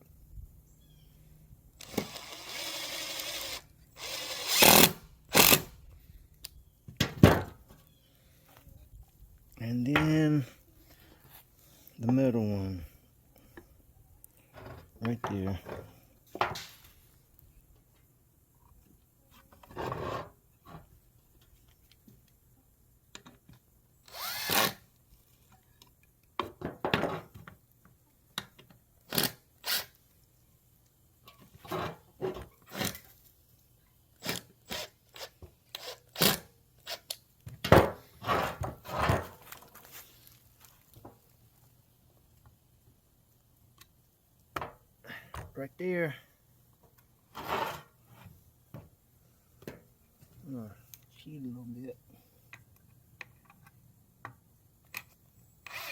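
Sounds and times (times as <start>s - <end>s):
power drill driving screws into wood: 1.8s - 5.8s, 24.0s - 24.9s, 29.1s - 30.0s, 32.7s - 33.1s, 34.2s - 37.1s, 55.6s - 55.9s
knocks and clicks of wood and tools: 6.9s - 7.9s, 25.8s - 27.6s, 35.2s - 39.9s, 44.5s - 45.6s.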